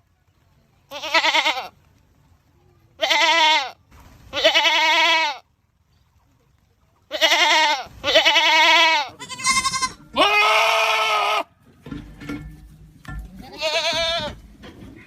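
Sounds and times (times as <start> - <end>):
goats screaming: 7.2 - 11.5.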